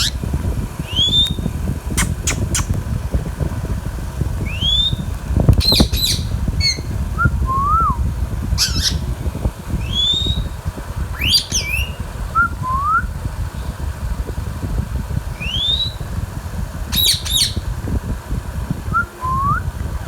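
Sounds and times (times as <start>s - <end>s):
parakeet squawks: 0.0s - 0.2s, 8.6s - 9.0s, 11.2s - 12.0s, 16.9s - 17.6s
parakeet whistles: 0.9s - 1.4s, 4.4s - 5.0s, 5.6s - 8.0s, 8.6s - 9.0s, 9.8s - 10.6s, 11.2s - 13.1s, 15.4s - 16.0s, 16.9s - 17.6s.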